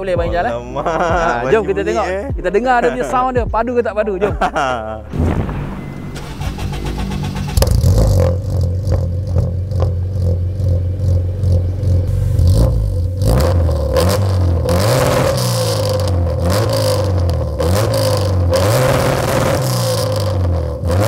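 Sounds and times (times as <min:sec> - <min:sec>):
car engine revving: 0:05.0 - 0:21.0.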